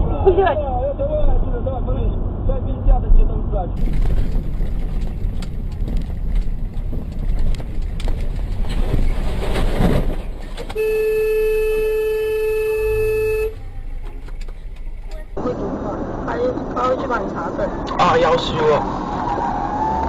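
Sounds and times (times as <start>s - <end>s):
car road and engine rumble: 0.0s - 20.0s
car horn long blast: 10.8s - 13.6s.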